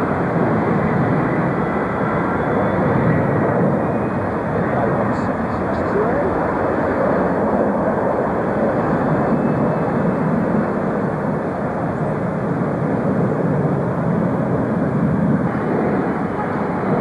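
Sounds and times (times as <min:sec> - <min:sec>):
jet airliner engines: 0:00.0 - 0:17.0.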